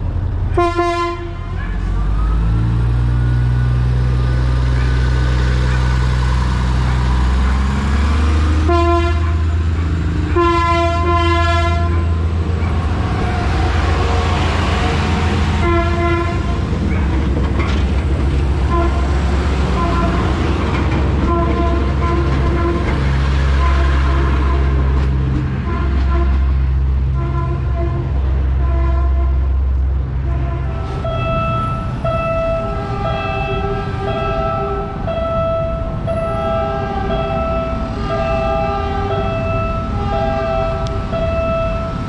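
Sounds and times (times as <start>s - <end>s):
diesel train engine droning: 0.0s - 42.0s
train horn: 0.5s - 1.8s, 8.5s - 9.6s, 10.3s - 12.2s, 13.4s - 16.7s, 18.6s - 20.5s, 21.2s - 24.9s, 25.6s - 29.5s, 30.2s - 31.2s, 32.5s - 35.0s, 36.1s - 41.0s
train wheels on rails: 1.5s - 28.6s.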